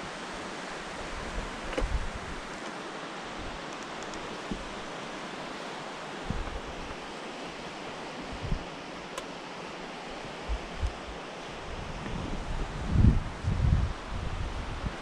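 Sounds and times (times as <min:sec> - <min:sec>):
outdoor hiss: 0:00.0 - 0:15.0
wind buffeting microphone: 0:01.0 - 0:02.5, 0:06.3 - 0:07.0, 0:08.3 - 0:08.7, 0:10.3 - 0:15.0.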